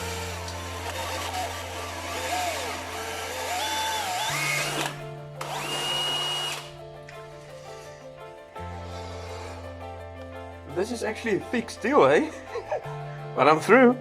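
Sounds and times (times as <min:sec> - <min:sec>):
electric drill boring steel: 0:00.0 - 0:06.7
background music: 0:00.0 - 0:14.0.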